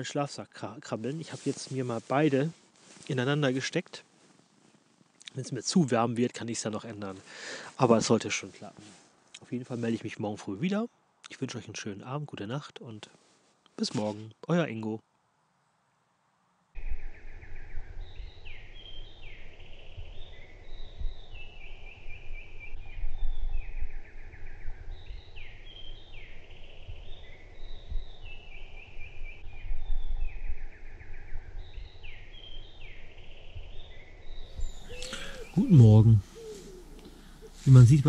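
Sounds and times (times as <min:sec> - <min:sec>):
wind noise on microphone: 0:16.8 - 0:37.8
songbirds singing: 0:16.8 - 0:38.0.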